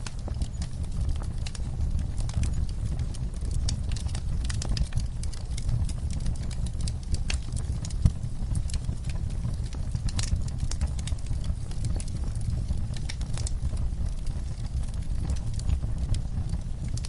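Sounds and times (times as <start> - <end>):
low rumble of flames: 0.0 - 17.0
wood fire crackling: 0.0 - 17.0
sharp pops and snaps: 3.6 - 17.0.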